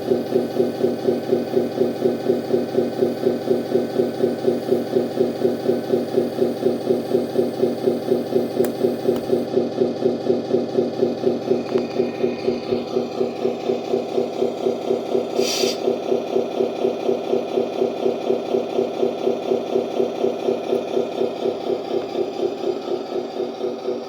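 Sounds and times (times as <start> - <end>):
diesel engine idle through speaker: 0.0 - 24.0
short hiss: 15.4 - 15.8.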